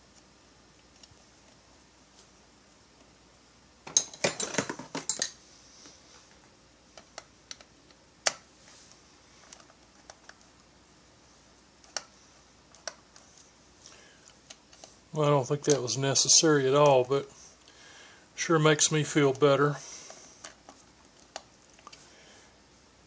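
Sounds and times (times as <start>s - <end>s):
tools set down on workbench: 3.8s - 5.4s.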